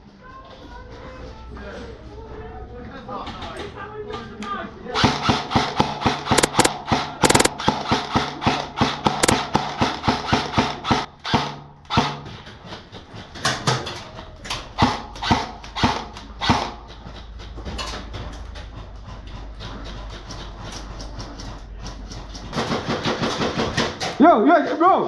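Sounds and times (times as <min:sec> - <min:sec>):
airsoft guns firing: 0:05.0 - 0:12.2.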